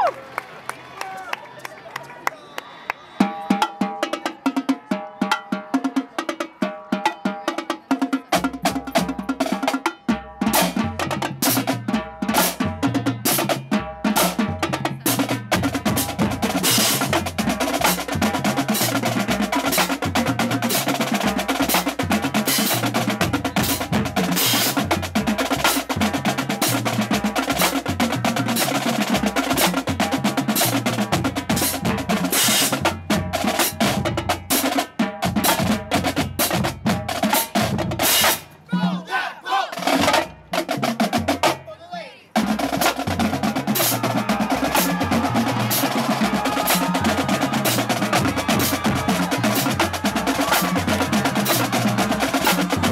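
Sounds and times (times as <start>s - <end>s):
snare drums rolling: 7.9s - 38.6s, 42.4s - 52.9s.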